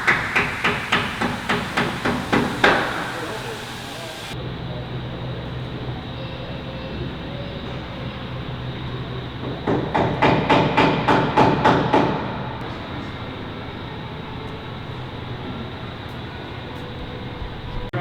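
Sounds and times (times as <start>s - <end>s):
hammer striking: 0.0s - 4.4s, 9.4s - 12.3s
steady background hum: 0.0s - 18.0s.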